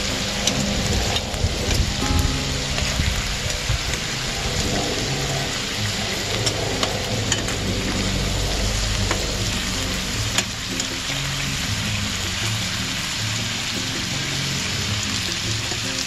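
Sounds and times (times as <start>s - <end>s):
chicken sizzling in hot oil: 0.0s - 16.0s
metal tongs clicking on pan: 6.3s - 7.6s.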